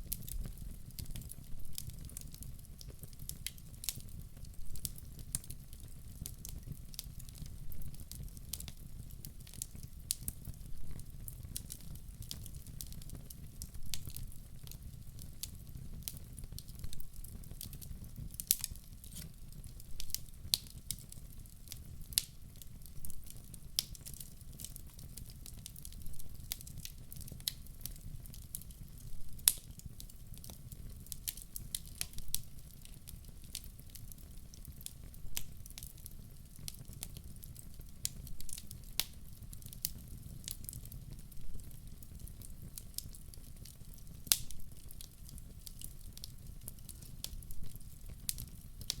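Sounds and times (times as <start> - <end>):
low rumble of flames: 0.0 - 49.0
wood fire crackling: 0.0 - 49.0
sharp pops of fire: 43.0 - 49.0.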